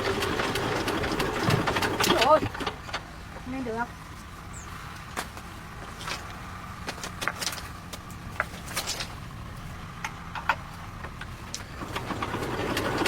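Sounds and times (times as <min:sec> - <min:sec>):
low engine hum: 0:00.0 - 0:13.0
sharp clicks and knocks: 0:10.0 - 0:11.7.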